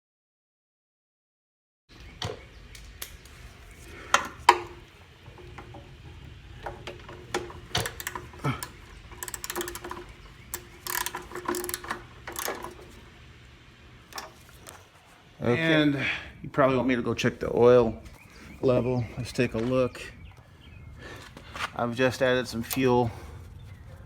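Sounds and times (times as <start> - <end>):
hand tools clicking and scraping: 3.0 - 13.2, 14.1 - 15.0, 22.5 - 23.2.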